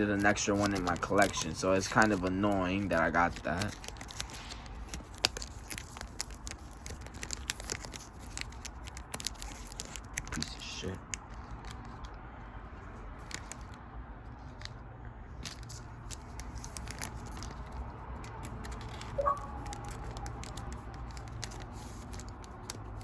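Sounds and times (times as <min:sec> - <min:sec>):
cards clicking and rustling: 0:00.0 - 0:12.2, 0:12.8 - 0:23.0
brief sharp sound: 0:19.2 - 0:19.8.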